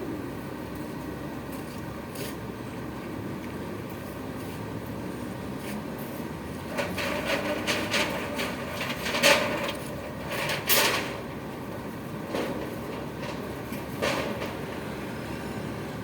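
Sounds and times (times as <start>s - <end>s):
irregular knocks and scrapes: 6.7s - 11.4s, 12.3s - 15.0s.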